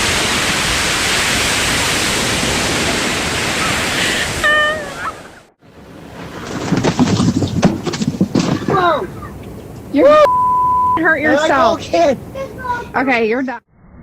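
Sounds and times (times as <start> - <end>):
surging water rushing: 0.0 - 6.6.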